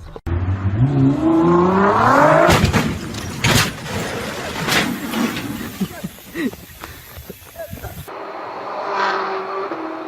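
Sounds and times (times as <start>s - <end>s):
car engine revving: 0.1s - 3.4s
engine backfire bangs: 2.3s - 5.0s.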